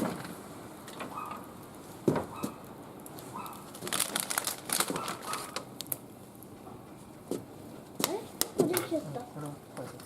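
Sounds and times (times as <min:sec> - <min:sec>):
plastic packaging crinkling: 0:03.2 - 0:06.0.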